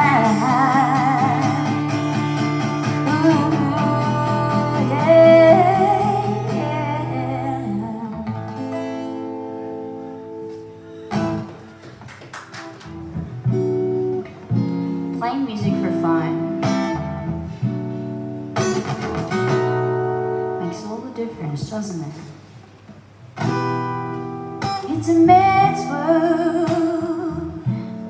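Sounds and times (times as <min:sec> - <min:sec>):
person singing with vibrato: 0:00.0 - 0:08.5, 0:24.8 - 0:27.8
acoustic guitar strumming: 0:00.0 - 0:28.0.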